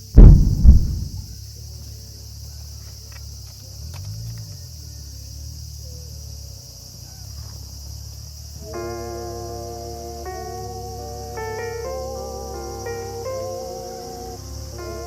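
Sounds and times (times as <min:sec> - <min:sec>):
low rumble: 0:00.0 - 0:01.3
insects chirping: 0:00.0 - 0:15.0.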